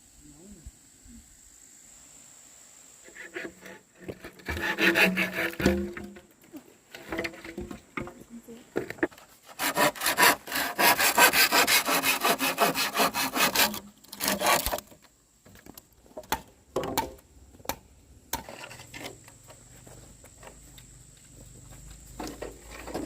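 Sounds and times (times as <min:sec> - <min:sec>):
hand saw cutting wood: 0:03.1 - 0:06.2, 0:09.1 - 0:15.0
knocks: 0:04.4 - 0:06.2.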